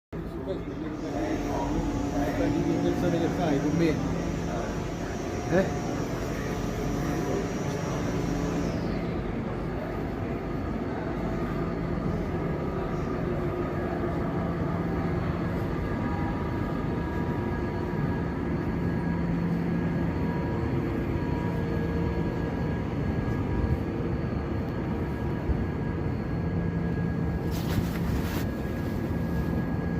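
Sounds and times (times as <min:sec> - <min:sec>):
electric train hum: 0:00.2 - 0:29.9
faint whining tones: 0:00.2 - 0:29.9.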